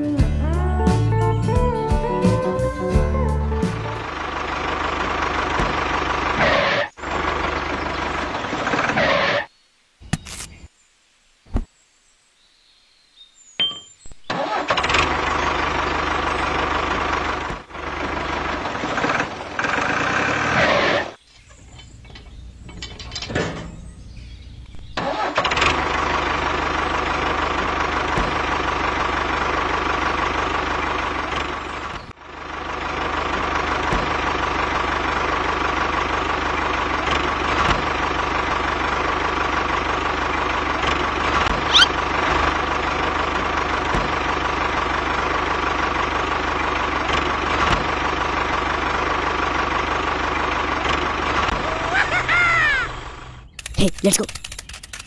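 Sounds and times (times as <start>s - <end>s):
toy tractor motor running: 53.6s - 55.0s.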